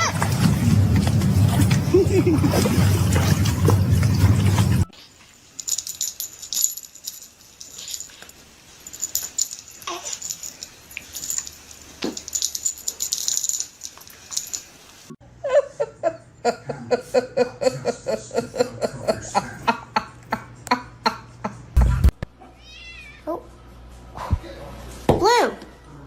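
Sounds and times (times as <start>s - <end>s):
laughter-like vocal pulses: 1.7s - 3.1s, 15.4s - 22.1s
light clicking and rattling: 5.6s - 14.8s
loud low thump: 21.8s - 22.3s.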